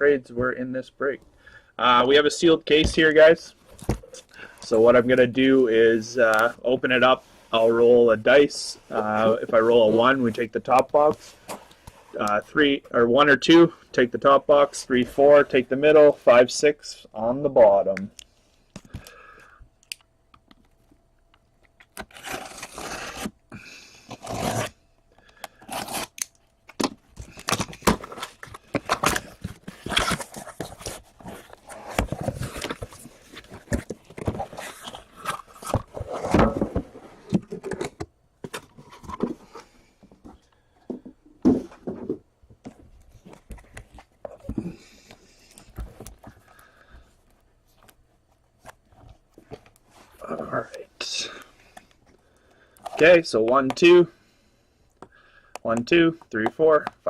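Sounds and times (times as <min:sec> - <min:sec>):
tape and cardboard tearing: 0:21.8 - 0:23.4, 0:24.0 - 0:24.8, 0:25.5 - 0:36.6.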